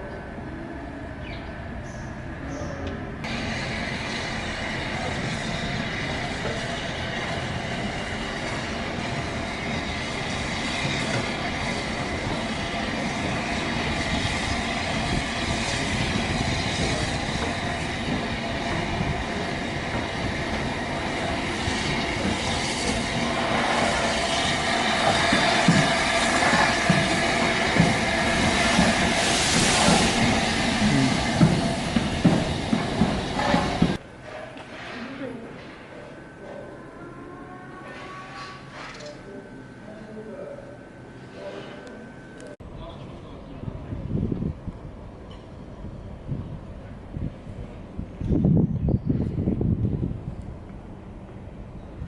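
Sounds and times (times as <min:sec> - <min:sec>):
train rolling on rails: 0:00.0 - 0:52.0.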